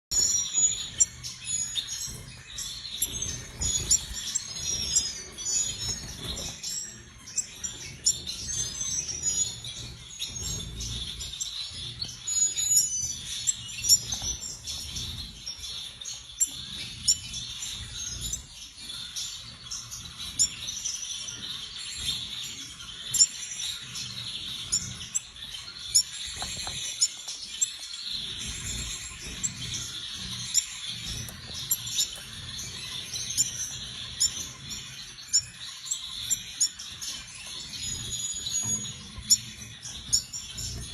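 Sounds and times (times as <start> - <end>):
finch chirping and singing: 0.1 - 40.9.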